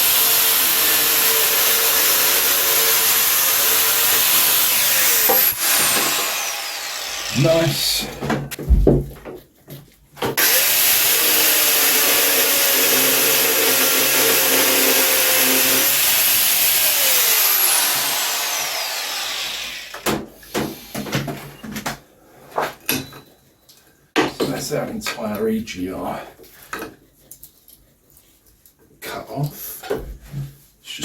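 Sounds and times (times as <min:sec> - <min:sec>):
angle grinder cutting metal: 0:00.0 - 0:08.0, 0:10.4 - 0:20.0.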